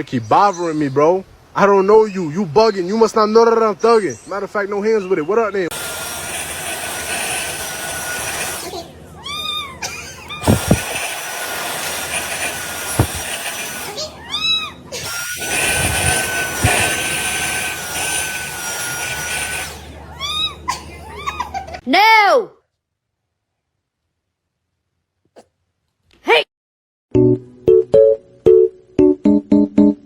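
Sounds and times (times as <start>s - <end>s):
motor whirring with whine: 5.7s - 9.0s, 9.9s - 14.2s, 14.9s - 20.1s
cat meowing: 9.2s - 10.7s, 14.1s - 14.9s
thumps: 12.9s - 13.3s.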